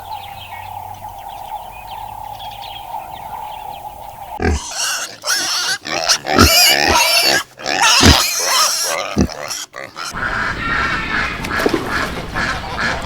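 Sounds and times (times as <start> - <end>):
pigs squealing: 4.4 - 13.0.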